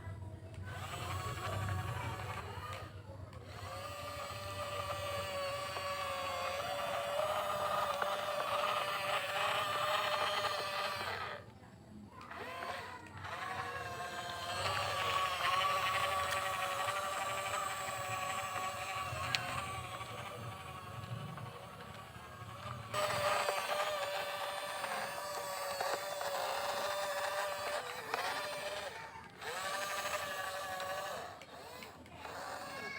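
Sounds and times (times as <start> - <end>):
small electric motors whining: 0.0 - 32.9.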